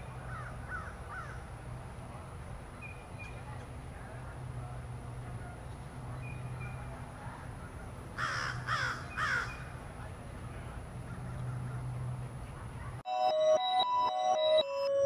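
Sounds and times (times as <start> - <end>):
bird harsh calls: 8.2 - 9.8.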